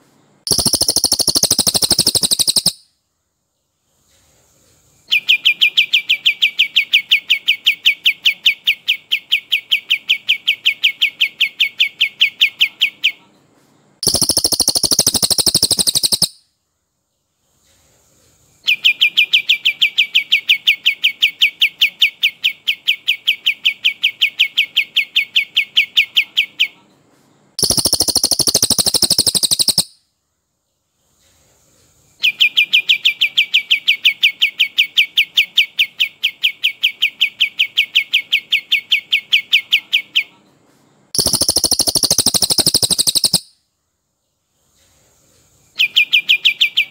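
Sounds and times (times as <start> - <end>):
high dense bird trill: 0.5 - 2.8, 14.0 - 16.4, 27.6 - 29.9, 41.2 - 43.6
recorded birdsong rapid repeated notes: 0.5 - 2.8, 14.0 - 16.4, 27.6 - 29.9, 41.2 - 43.5.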